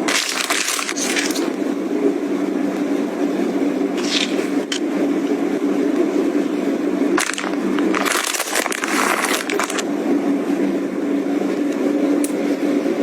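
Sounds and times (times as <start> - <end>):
packaging crinkling: 0.0 - 1.6, 4.0 - 4.8, 7.2 - 9.8
steady low hum: 0.0 - 13.0.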